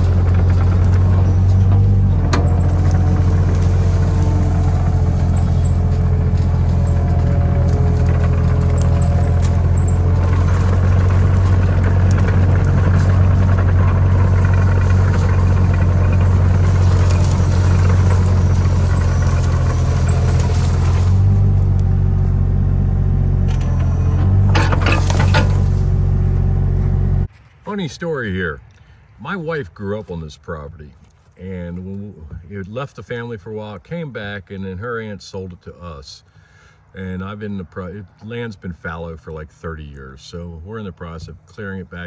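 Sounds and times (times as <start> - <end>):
faint clicks and rattles: 0.0 - 21.9
mini excavator engine running: 0.0 - 27.3.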